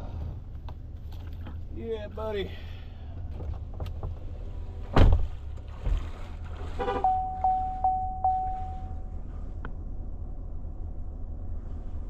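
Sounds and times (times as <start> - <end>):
steady low rumble: 0.0 - 12.0
steady warning tone: 6.9 - 11.6.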